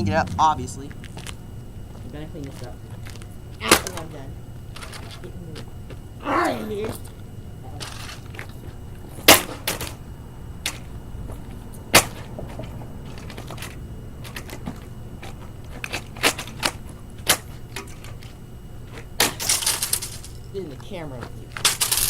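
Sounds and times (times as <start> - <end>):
toy dollhouse being smashed: 19.2 - 20.4.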